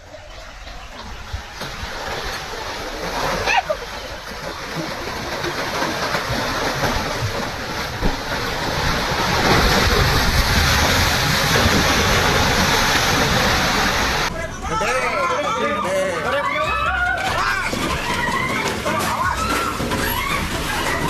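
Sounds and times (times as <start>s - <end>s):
rushing crashing water: 1.3s - 14.5s.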